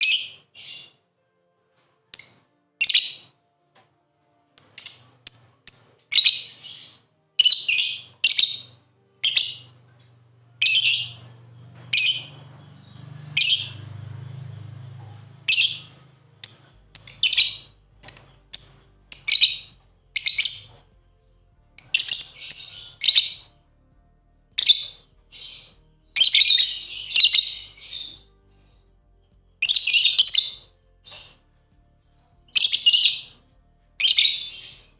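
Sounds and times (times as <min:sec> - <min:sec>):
lovebirds chirping: 0:02.2 - 0:03.3, 0:04.6 - 0:09.8, 0:10.6 - 0:14.1, 0:15.4 - 0:20.8, 0:21.8 - 0:23.5, 0:24.6 - 0:28.3, 0:29.6 - 0:31.4, 0:32.5 - 0:33.4, 0:34.0 - 0:34.9.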